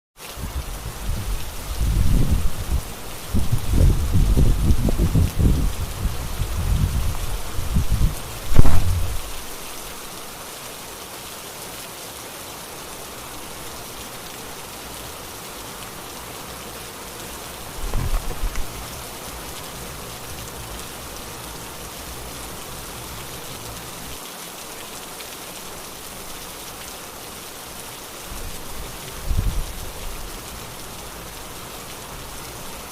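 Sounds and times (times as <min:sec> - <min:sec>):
rainfall hissing: 0:00.2 - 0:32.9
low rumbling bumps: 0:01.8 - 0:09.4, 0:17.8 - 0:18.8
loud thump: 0:08.5 - 0:09.3, 0:17.8 - 0:18.6.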